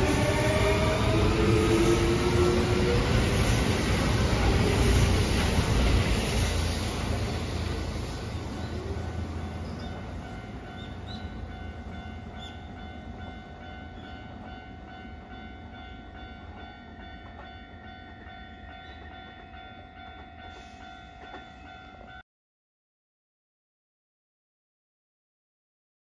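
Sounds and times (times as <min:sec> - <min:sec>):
electric train pulling away: 0:00.0 - 0:13.4.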